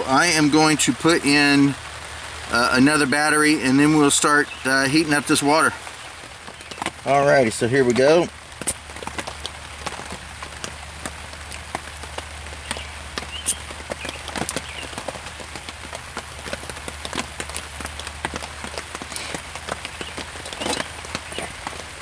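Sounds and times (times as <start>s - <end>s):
rain drops tapping on tarp: 0.0s - 22.0s
steady hiss of rain: 0.0s - 22.0s.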